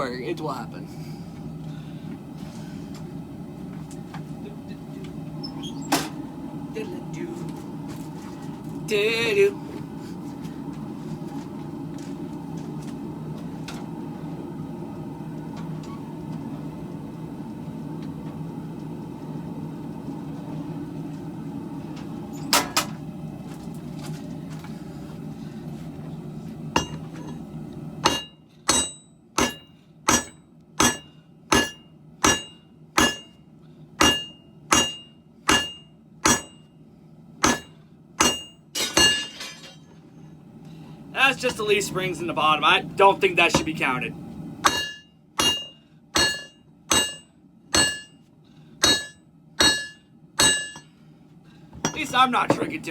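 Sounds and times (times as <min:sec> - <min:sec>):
hammer ringing on anvil: 0:26.8 - 0:27.0, 0:28.0 - 0:33.4, 0:34.0 - 0:36.7, 0:37.4 - 0:39.8, 0:44.7 - 0:48.2, 0:48.8 - 0:50.9.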